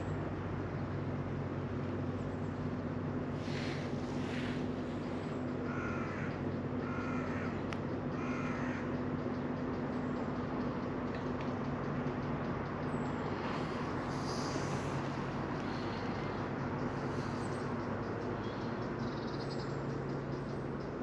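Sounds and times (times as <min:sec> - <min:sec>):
steady low hum: 0:00.0 - 0:21.0
harsh crow-like bird calls: 0:03.4 - 0:09.8, 0:13.2 - 0:20.6.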